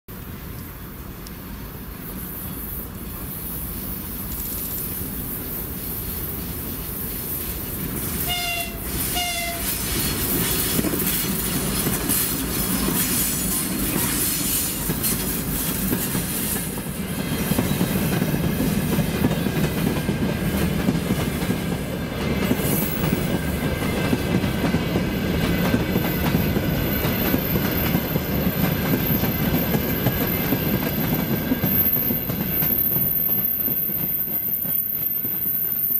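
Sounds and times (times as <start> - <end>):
train horn blasts: 8.2 - 9.9
wheel squeal: 28.9 - 35.9.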